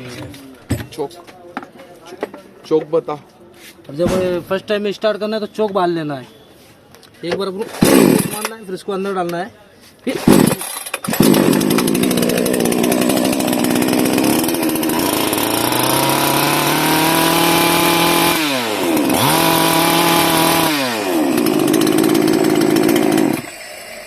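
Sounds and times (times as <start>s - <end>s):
chainsaw engine revving: 7.7s - 8.5s, 10.1s - 24.0s.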